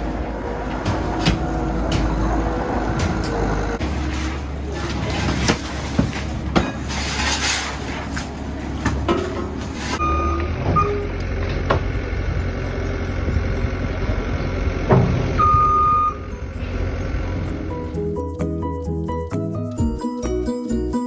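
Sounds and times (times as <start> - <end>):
heavy machine engine running: 0.0 - 7.0, 7.7 - 18.1
knocks and clanks of debris: 4.8 - 10.0, 14.8 - 15.4
backup alarm beeps: 10.0 - 11.1, 15.3 - 16.4.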